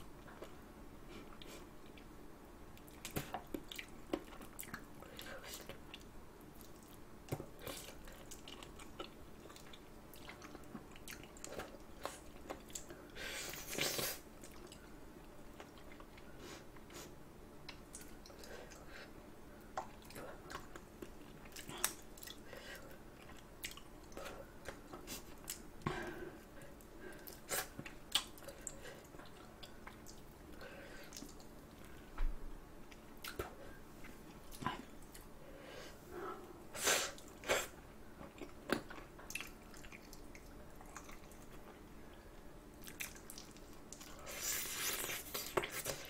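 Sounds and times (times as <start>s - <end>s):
wet chewing and gnawing: 38.2s - 41.8s, 42.8s - 46.0s.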